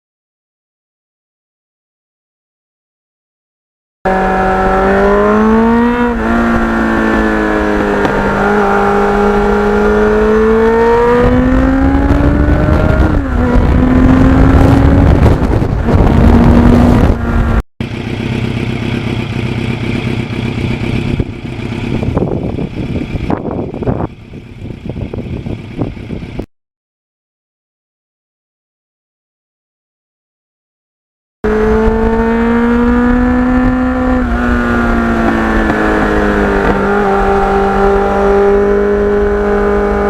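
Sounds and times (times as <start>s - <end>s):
wind rush: 4.1s - 17.6s, 21.0s - 26.4s, 31.5s - 40.0s
motorcycle engine accelerating: 4.1s - 26.5s, 31.4s - 40.0s.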